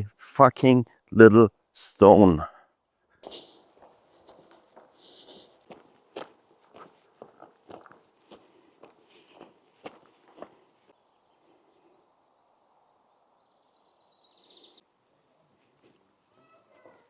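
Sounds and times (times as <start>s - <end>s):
outdoor ambience: 0.0s - 17.0s
footsteps on gravel: 3.8s - 10.7s.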